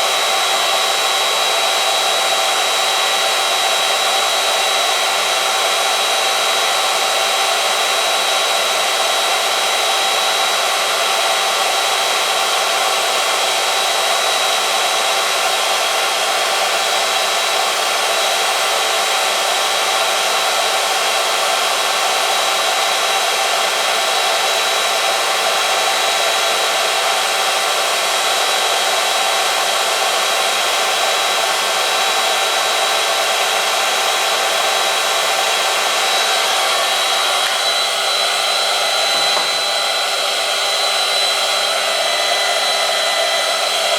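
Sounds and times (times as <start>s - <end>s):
test machine motor whining: 31.5s - 43.9s.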